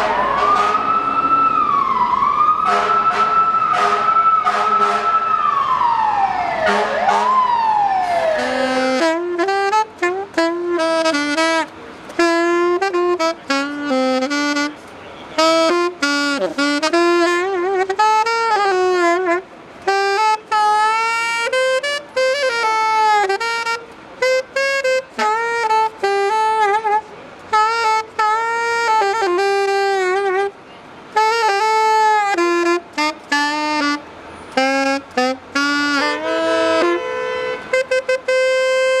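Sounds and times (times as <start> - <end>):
saxophone playing jazzy melody: 8.3 - 39.0.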